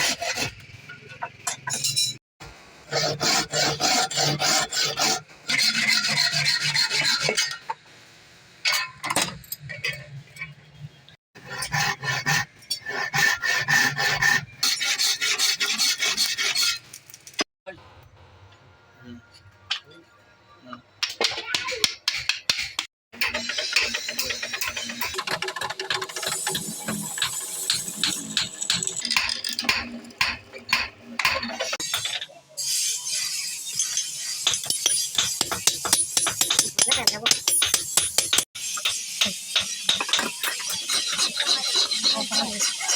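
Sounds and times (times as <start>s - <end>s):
hand file rasping on metal: 2.9s - 7.5s, 11.4s - 16.8s, 33.9s - 42.9s.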